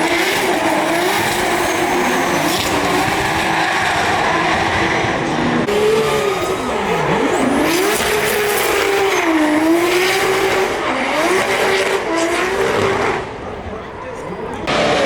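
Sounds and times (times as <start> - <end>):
car engine at high revs: 0.0 - 13.7, 14.5 - 15.0
tyre squeal: 0.4 - 4.3, 5.7 - 9.9.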